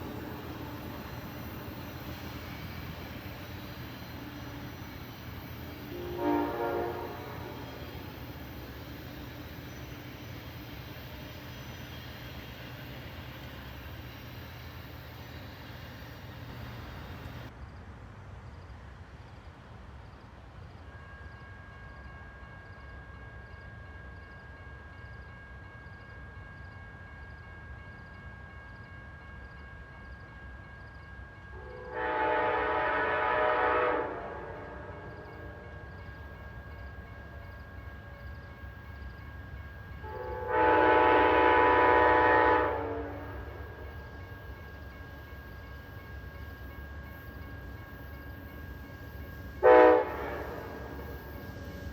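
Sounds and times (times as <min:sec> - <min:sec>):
train rumbling: 0:00.0 - 0:18.2, 0:19.5 - 0:51.9
train air horn blast: 0:05.9 - 0:08.0, 0:31.6 - 0:35.7, 0:40.0 - 0:43.8, 0:49.6 - 0:51.3.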